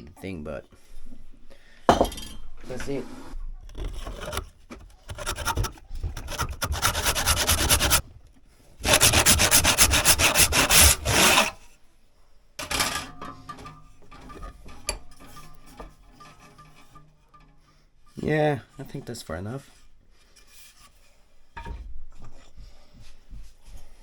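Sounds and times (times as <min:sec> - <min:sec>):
hand saw cutting wood: 0:03.7 - 0:08.0, 0:08.8 - 0:11.6.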